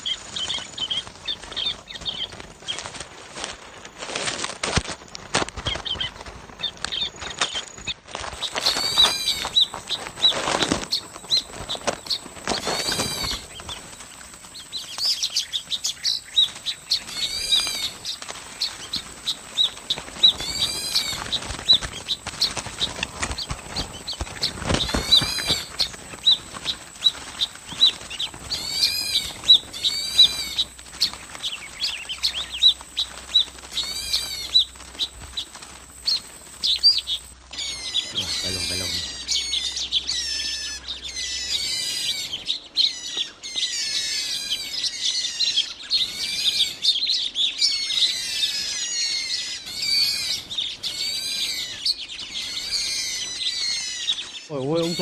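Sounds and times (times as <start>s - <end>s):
flock of birds chirping: 0.0s - 55.0s
wings flapping: 0.0s - 55.0s
loud arched bird call: 8.6s - 9.7s, 12.6s - 13.5s, 28.5s - 30.8s, 33.7s - 34.7s, 36.0s - 47.0s, 47.6s - 55.0s.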